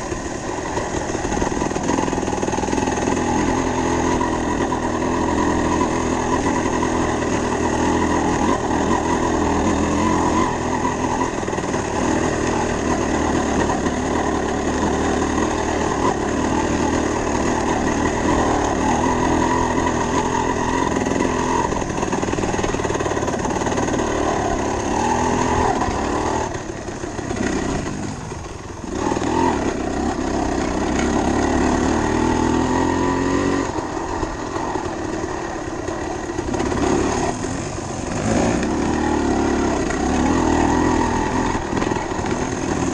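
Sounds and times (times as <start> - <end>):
dirt bike engine running: 0.0 - 42.9.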